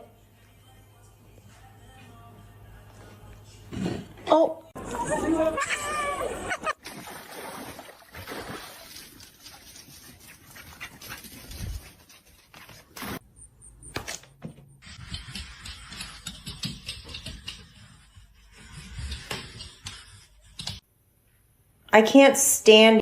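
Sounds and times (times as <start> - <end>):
dog panting and whimpering: 9.5 - 12.9.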